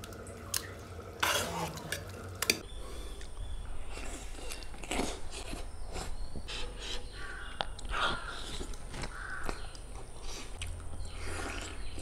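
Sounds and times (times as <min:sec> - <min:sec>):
biting and wet chewing: 0:03.1 - 0:12.0
crow cawing: 0:09.1 - 0:09.6.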